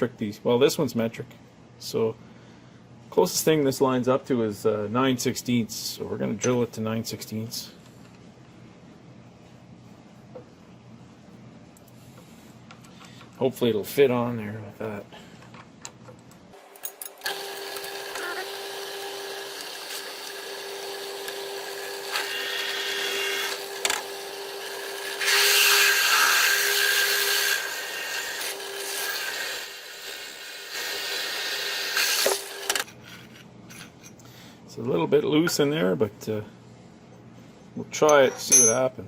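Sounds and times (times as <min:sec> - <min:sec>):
drill press motor humming: 0:17.1 - 0:32.8
drill bit cutting aluminum: 0:17.2 - 0:32.7.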